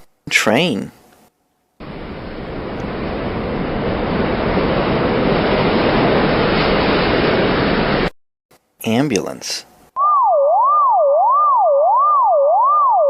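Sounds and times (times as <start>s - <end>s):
train rumbling: 1.8s - 8.1s.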